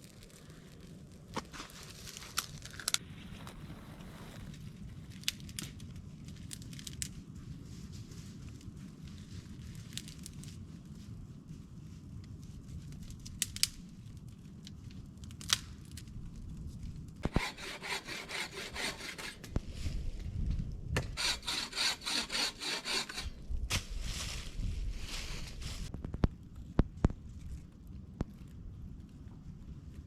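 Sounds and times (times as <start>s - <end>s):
hand saw cutting wood: 17.2s - 19.6s, 21.2s - 23.4s.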